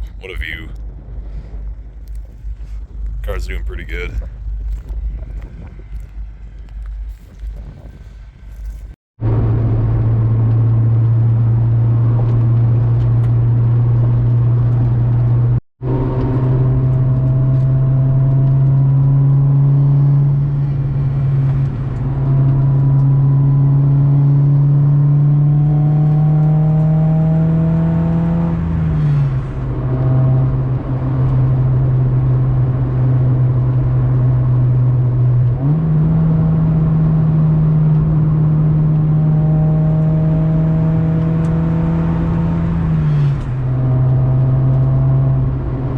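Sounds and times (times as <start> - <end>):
car engine revving: 9.2 - 45.9.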